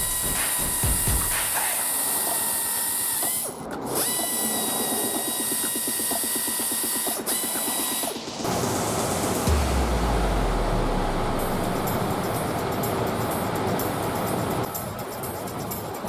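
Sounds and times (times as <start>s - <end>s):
power tool whining and rattling: 1.8s - 8.1s.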